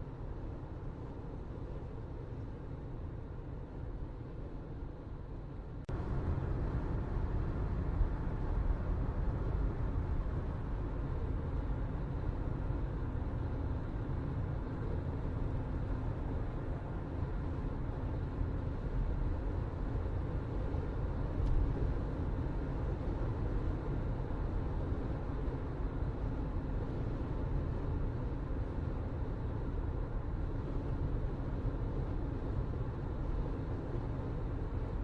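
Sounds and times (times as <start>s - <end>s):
low rumbling background noise: 0.0s - 35.0s.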